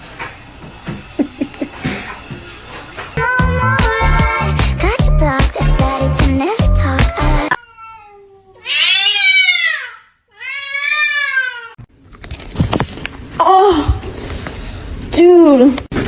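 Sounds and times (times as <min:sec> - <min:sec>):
music: 0:03.2 - 0:07.6
kitten meowing: 0:07.6 - 0:11.8.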